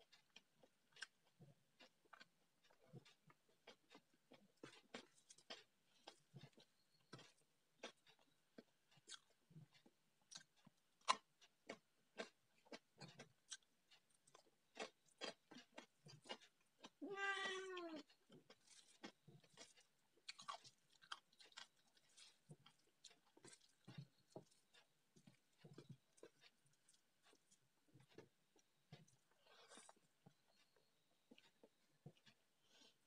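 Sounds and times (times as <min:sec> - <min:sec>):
wet chewing and lip-smacking: 0:00.0 - 0:33.0
cat meowing: 0:17.0 - 0:18.1.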